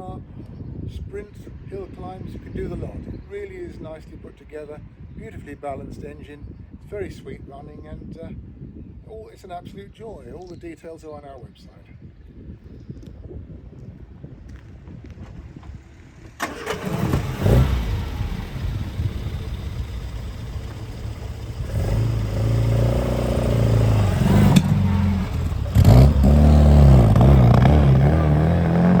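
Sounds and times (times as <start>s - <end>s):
car engine revving: 16.4s - 29.0s
sharp click: 24.5s - 24.8s.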